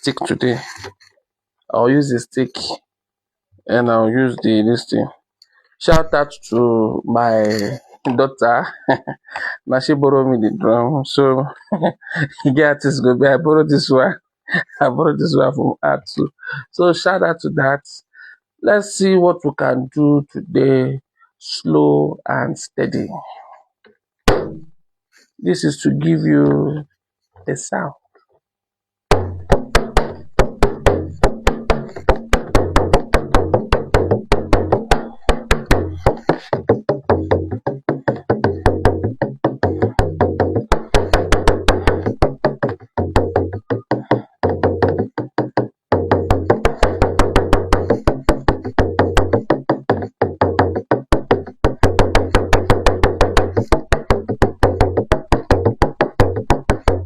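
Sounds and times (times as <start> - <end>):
drum struck with stick: 24.3 - 24.7, 29.1 - 57.0.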